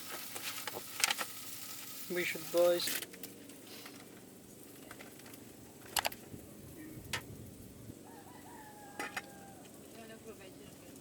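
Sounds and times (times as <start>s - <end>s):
rooster crowing: 8.0s - 9.8s.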